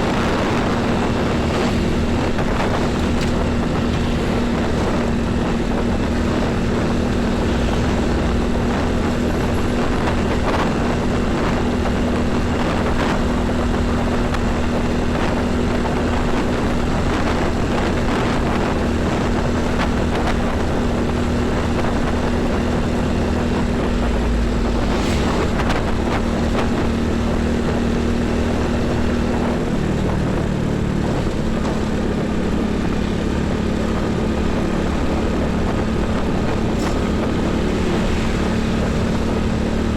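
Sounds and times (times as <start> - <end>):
diesel truck engine hum: 0.0 - 39.9
passing vehicle rush: 0.0 - 39.9.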